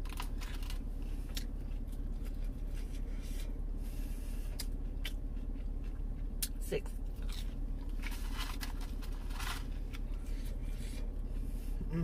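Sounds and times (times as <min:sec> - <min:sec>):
low hum: 0:00.0 - 0:12.0
wet chewing: 0:04.4 - 0:11.1.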